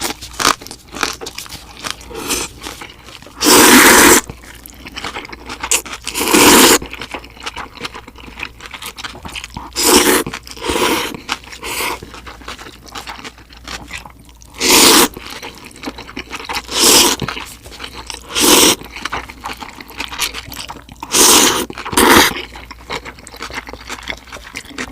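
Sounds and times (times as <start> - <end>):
crunching bites of crispy food: 0.0 - 3.4, 4.2 - 24.9
quiet chewing: 0.0 - 24.9.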